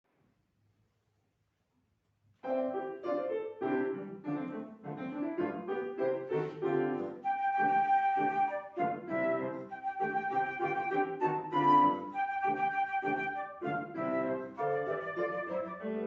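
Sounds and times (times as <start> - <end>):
piano: 2.3 - 16.0
flute: 6.2 - 16.0.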